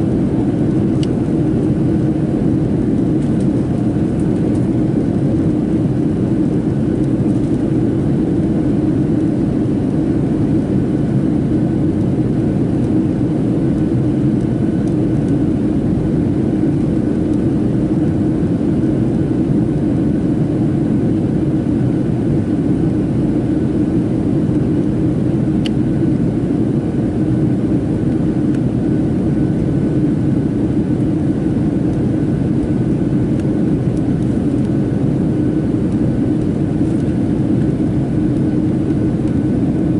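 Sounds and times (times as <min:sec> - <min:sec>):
airplane cabin roar: 0:00.0 - 0:39.9
faint steady whine: 0:00.0 - 0:39.9.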